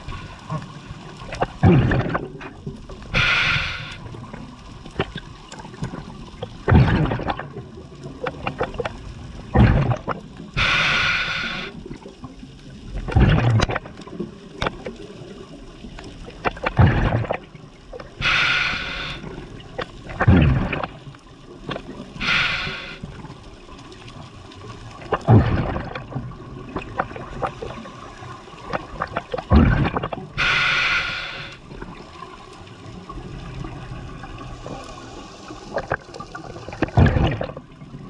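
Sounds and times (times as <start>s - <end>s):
exhaled air bubbling: 0.0s - 38.0s
regulator inhale hissing: 3.1s - 4.1s, 10.6s - 11.8s, 18.2s - 19.4s, 22.2s - 23.1s, 30.4s - 31.6s.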